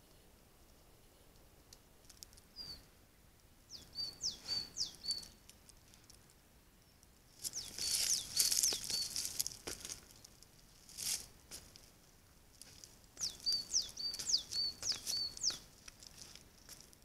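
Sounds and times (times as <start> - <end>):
small bird whistling calls: 2.6 - 2.9, 3.7 - 5.4, 7.5 - 9.2, 13.2 - 15.6
deer rustling close: 7.4 - 16.9.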